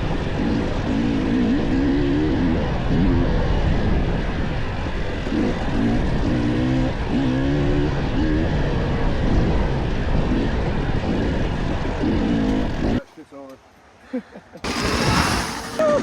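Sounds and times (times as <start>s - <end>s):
dirt bike engine revving: 0.0s - 3.8s, 4.8s - 13.0s, 14.6s - 16.0s
wind noise: 1.8s - 13.0s.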